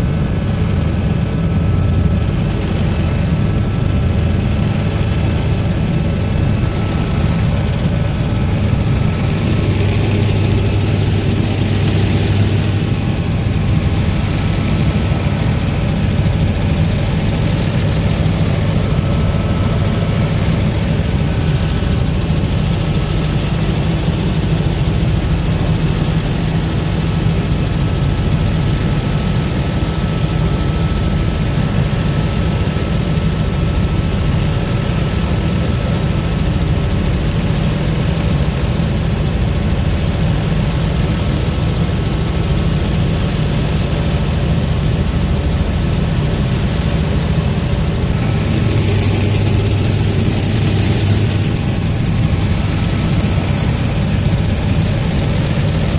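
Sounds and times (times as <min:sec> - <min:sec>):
helicopter rotor and engine: 0:00.0 - 0:55.9
high whine: 0:00.0 - 0:55.9.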